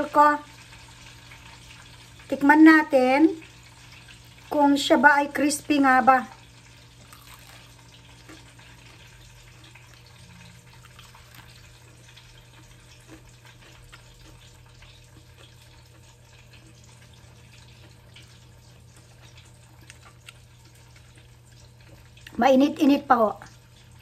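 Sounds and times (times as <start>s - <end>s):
faint crunchy chewing: 6.7s - 22.4s.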